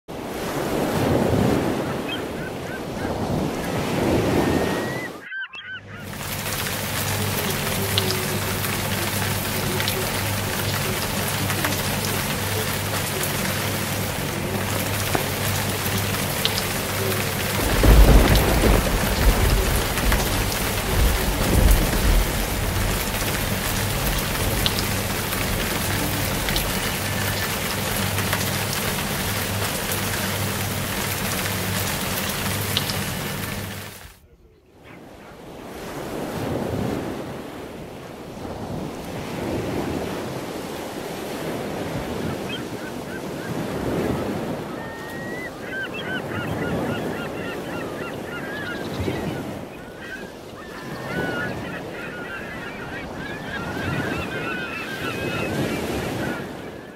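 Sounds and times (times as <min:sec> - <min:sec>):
heavy rain pouring: 0:00.2 - 0:05.3, 0:05.9 - 0:34.2, 0:38.5 - 0:56.9
thunder rumbling: 0:13.8 - 0:28.1.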